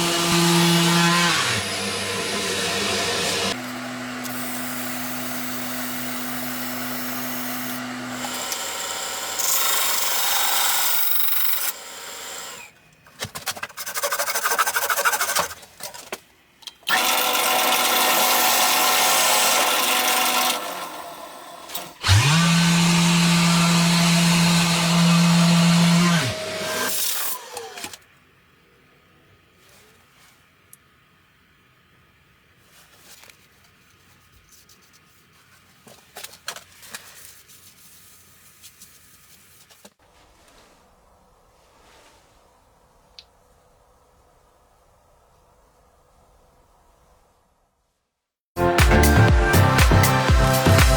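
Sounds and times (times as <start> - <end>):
woodworking power tools running: 0.0 - 12.6, 16.9 - 28.0.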